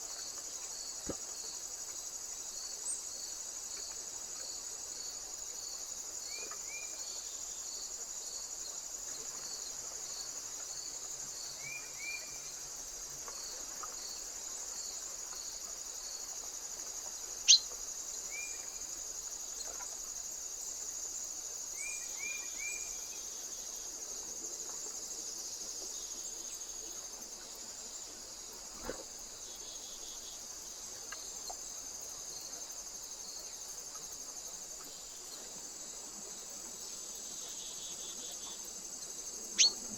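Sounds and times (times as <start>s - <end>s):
insects chirping: 0.0s - 39.9s
short high bird chirps: 39.6s - 39.8s.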